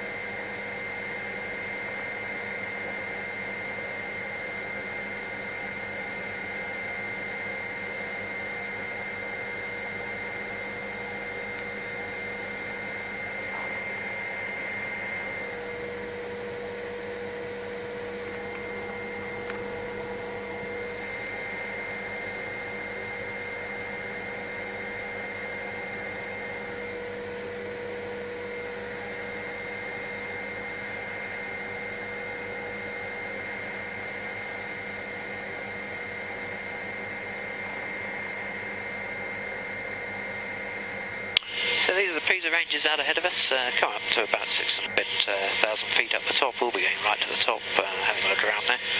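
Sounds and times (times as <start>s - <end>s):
helicopter engine and rotor noise: 0.0s - 48.9s.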